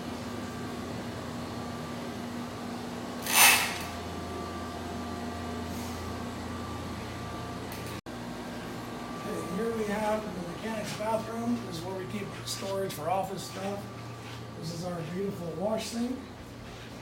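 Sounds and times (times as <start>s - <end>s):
air-conditioning unit humming: 0.0s - 17.0s
short loud hiss: 3.2s - 3.8s.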